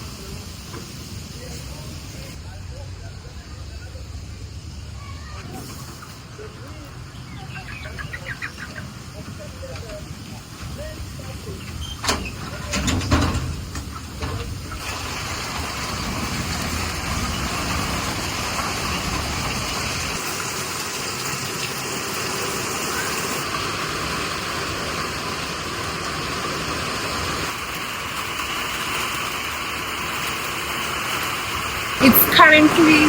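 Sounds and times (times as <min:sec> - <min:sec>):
rain falling: 0:08.8 - 0:33.0.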